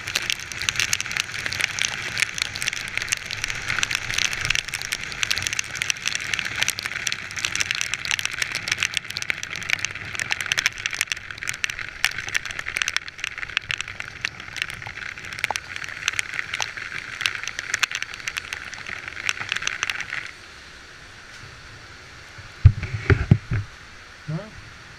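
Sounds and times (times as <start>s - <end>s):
heavy rain hitting camera: 0.0s - 24.1s.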